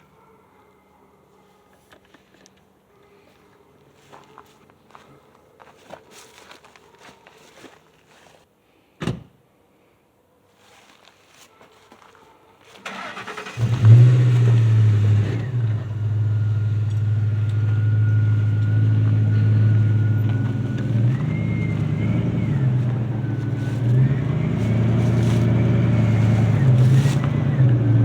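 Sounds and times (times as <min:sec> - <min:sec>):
engine cranking and running: 0:12.7 - 0:28.0.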